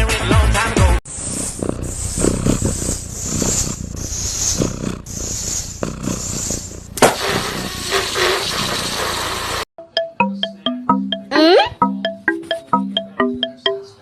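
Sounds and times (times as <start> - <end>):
cat hissing and growling: 1.0 - 9.7.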